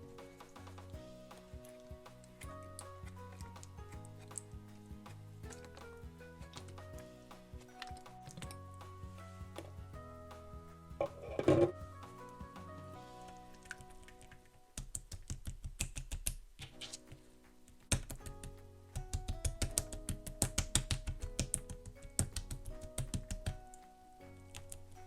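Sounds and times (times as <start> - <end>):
soft background music: 0.0 - 25.0
slime clicking and popping: 13.7 - 17.0, 17.8 - 23.7.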